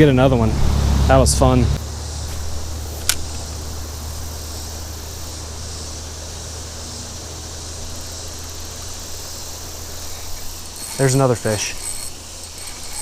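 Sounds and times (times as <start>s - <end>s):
sharp click: 3.0s - 3.5s.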